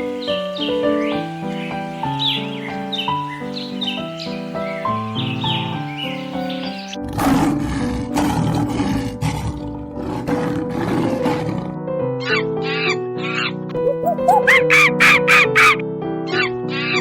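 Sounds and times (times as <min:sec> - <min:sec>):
background music: 0:00.0 - 0:17.0
long rough roar: 0:07.0 - 0:11.8.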